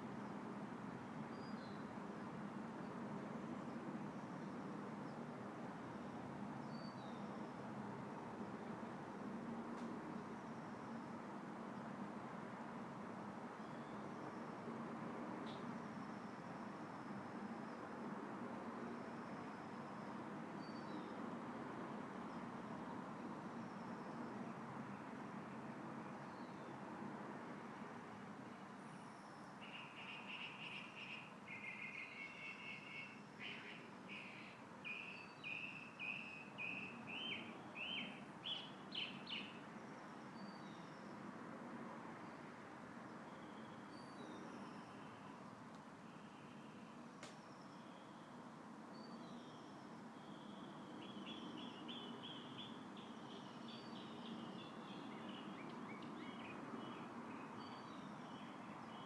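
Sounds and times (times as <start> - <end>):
light wind rustling in a tree: 0.0 - 59.0
songbird singing trills: 29.6 - 41.1, 48.9 - 59.0.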